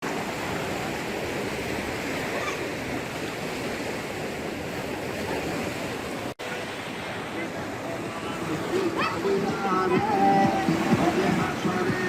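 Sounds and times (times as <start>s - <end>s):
flood water rushing: 0.0s - 12.0s.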